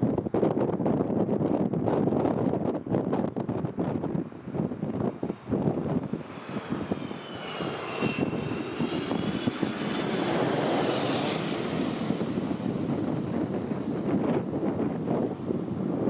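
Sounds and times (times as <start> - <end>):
wind buffeting microphone: 0.0 - 16.0
jet airliner passing: 3.7 - 16.0.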